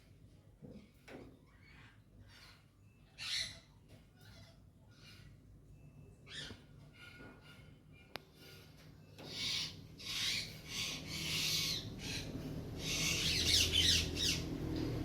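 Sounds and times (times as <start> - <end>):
parrots screeching: 1.5 - 5.4, 6.2 - 8.6, 9.2 - 14.5.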